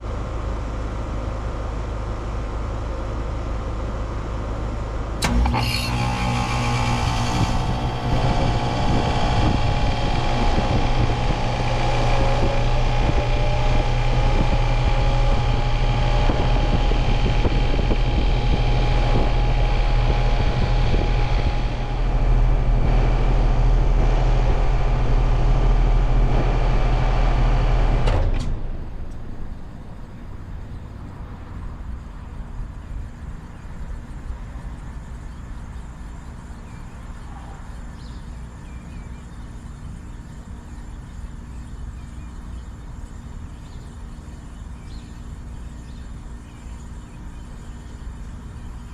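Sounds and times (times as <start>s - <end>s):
heat pump humming and whining: 0.0s - 48.9s
low hum: 0.0s - 48.9s
heat pump switch click: 5.2s - 13.2s.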